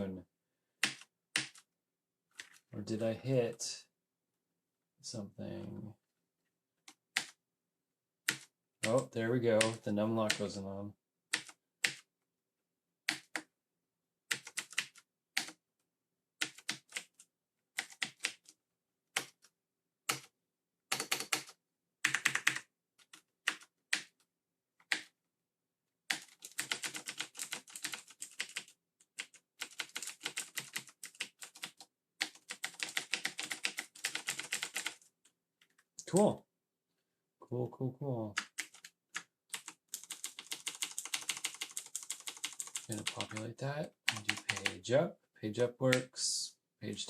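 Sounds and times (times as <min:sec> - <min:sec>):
mechanical keyboard keystrokes: 0:29.6 - 0:35.0, 0:39.5 - 0:43.4.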